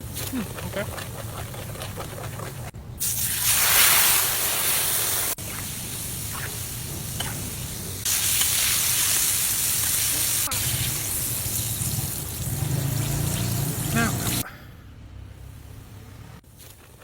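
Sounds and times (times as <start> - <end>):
chicken frying in grease: 1.9 - 14.4.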